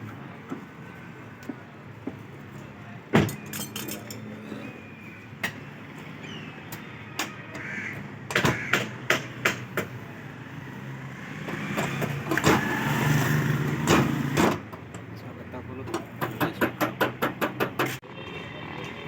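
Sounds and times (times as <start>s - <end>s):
motor vehicle passing: 10.0s - 14.5s.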